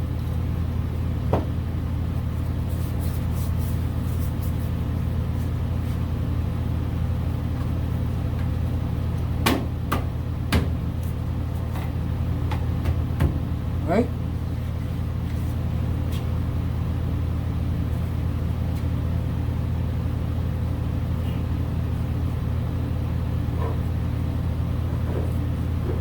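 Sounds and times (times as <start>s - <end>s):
steady low hum: 0.0s - 26.0s
sharp knock of tools: 9.4s - 10.8s.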